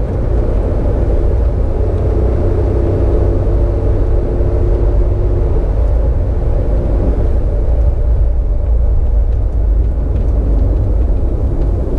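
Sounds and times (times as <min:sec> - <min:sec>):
vehicle rumble: 0:00.0 - 0:11.9
light ticks: 0:07.7 - 0:11.9.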